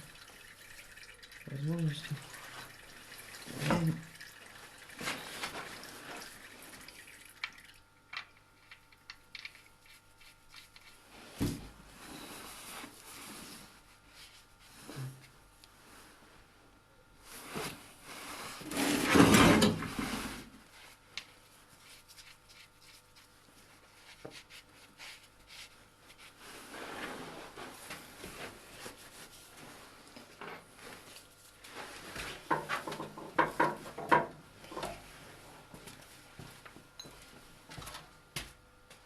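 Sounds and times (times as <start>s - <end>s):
loud scrape or rustle: 17.3s - 20.5s, 26.4s - 27.8s.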